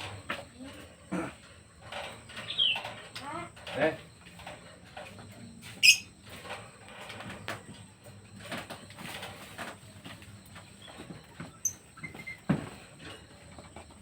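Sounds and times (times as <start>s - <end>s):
faint knocks and rustles: 0.0s - 14.0s
pet birds chirping: 2.3s - 3.5s, 5.8s - 6.2s, 10.6s - 12.7s.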